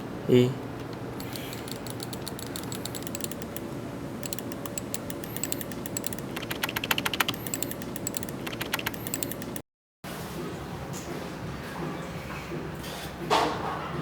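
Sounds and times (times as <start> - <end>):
typing on computer keyboard: 1.2 - 3.6, 4.2 - 9.6.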